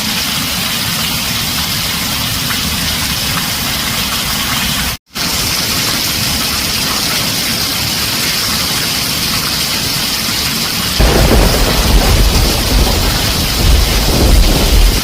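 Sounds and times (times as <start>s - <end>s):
heavy rain on a tin roof: 0.0s - 15.0s
deep thunder rumble: 11.0s - 15.0s.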